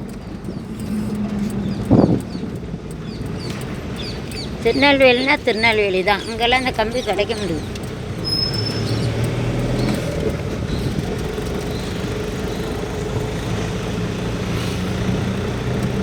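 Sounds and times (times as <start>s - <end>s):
car engine hum and road noise: 0.0s - 16.0s.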